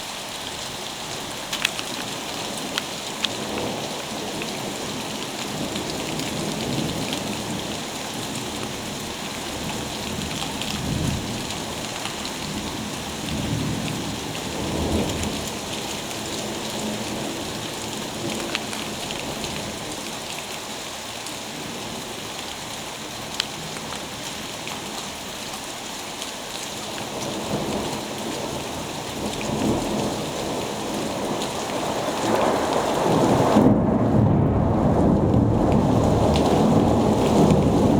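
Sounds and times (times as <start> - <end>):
heavy rain falling: 0.0 - 37.9
thunder rumbling: 27.4 - 37.9.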